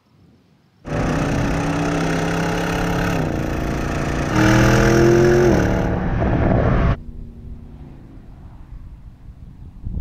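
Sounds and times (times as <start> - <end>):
car engine accelerating: 0.9 - 8.7.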